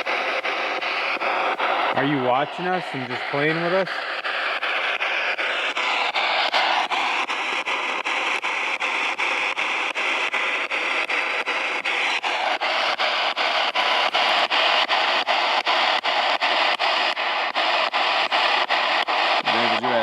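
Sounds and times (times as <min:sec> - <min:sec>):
choppy radio static: 0:00.0 - 0:20.0.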